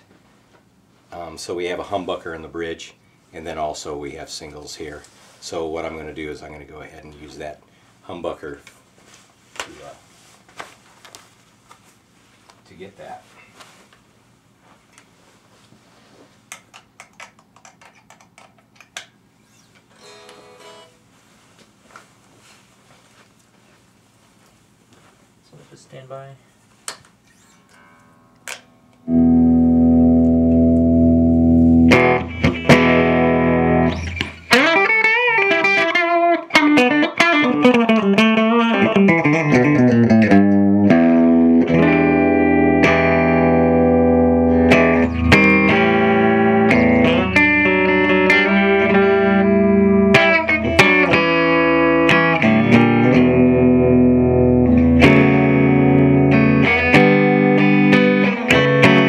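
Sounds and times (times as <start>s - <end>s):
electric guitar playing: 20.0s - 21.0s, 27.4s - 59.0s.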